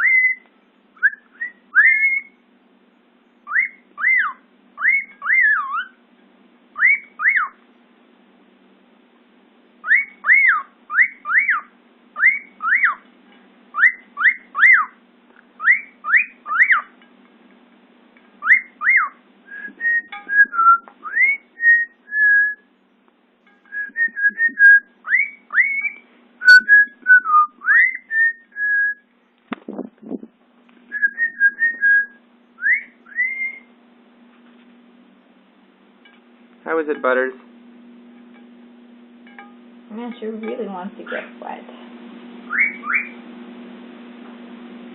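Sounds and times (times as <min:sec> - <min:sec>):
cockatiel whistling: 0:00.0 - 0:02.4, 0:03.4 - 0:06.0, 0:06.8 - 0:07.6, 0:09.8 - 0:13.0, 0:13.7 - 0:15.0, 0:15.6 - 0:16.9, 0:18.4 - 0:22.7, 0:23.6 - 0:29.0, 0:30.9 - 0:33.7, 0:42.4 - 0:43.2.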